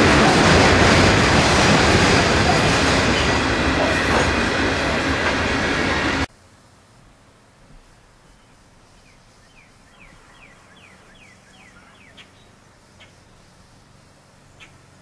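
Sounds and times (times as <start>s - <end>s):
freight train wheels on rails: 0.0s - 6.3s
faint outdoor background: 4.5s - 15.0s.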